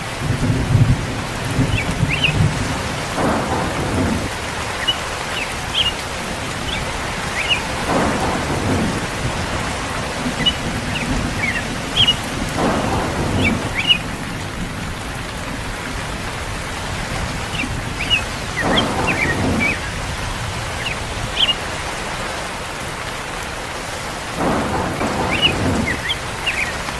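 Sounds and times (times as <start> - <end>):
low thunder rolls: 0.0 - 23.0, 23.8 - 26.9
heavy rain: 0.0 - 26.9.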